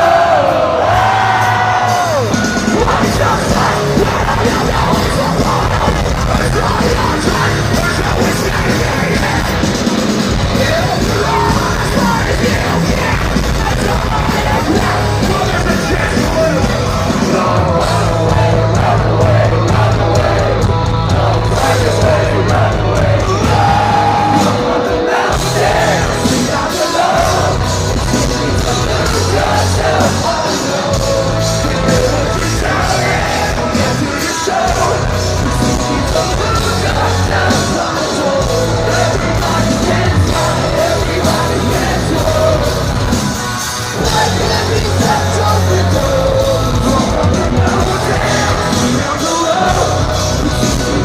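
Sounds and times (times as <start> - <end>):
heavy rock music: 0.0 - 51.0
sustained bass notes: 0.0 - 51.0
person yelling and singing: 10.4 - 19.3.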